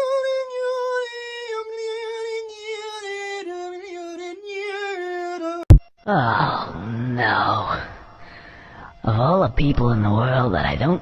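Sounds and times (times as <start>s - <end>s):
person singing unaccompanied: 0.0s - 6.3s.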